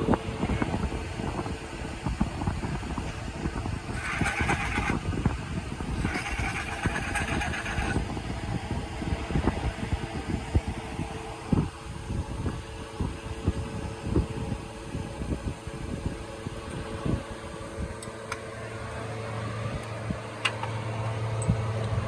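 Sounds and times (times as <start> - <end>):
engine knocking: 3.9 - 5.1, 5.9 - 8.1.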